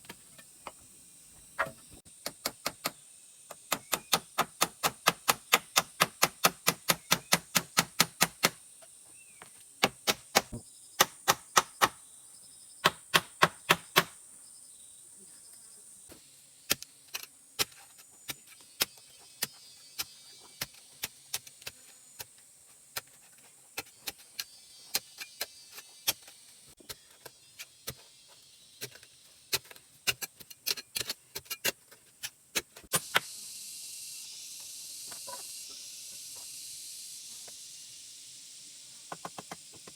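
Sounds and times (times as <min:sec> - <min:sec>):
sharp knocks of hand tool: 0:09.8 - 0:12.0, 0:12.8 - 0:14.2
steady hiss: 0:32.8 - 0:39.9.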